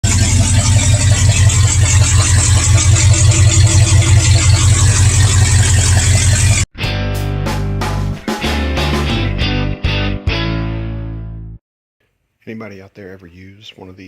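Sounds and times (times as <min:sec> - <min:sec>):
truck engine idling: 0:00.0 - 0:06.7.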